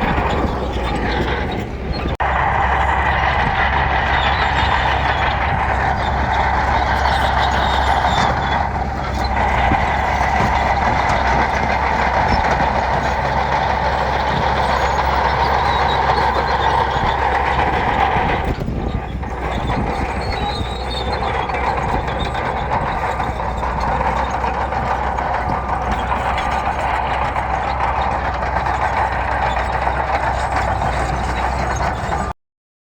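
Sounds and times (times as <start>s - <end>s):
bulldozer diesel engine running: 0.0s - 32.4s.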